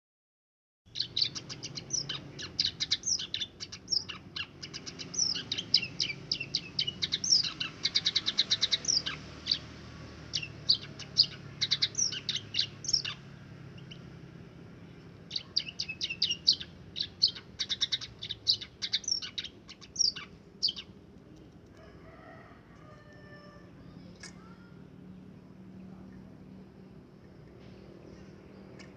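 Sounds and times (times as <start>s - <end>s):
bird singing rapid chirps and trills: 0.9s - 21.5s.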